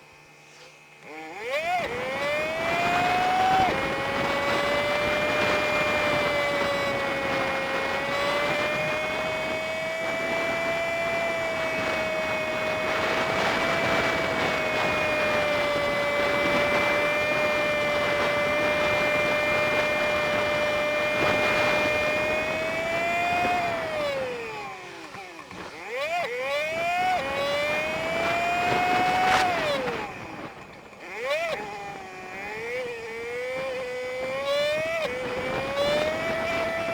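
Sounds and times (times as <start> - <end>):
high engine whine: 0.0 - 36.9
wind noise: 1.8 - 24.9, 26.5 - 36.9.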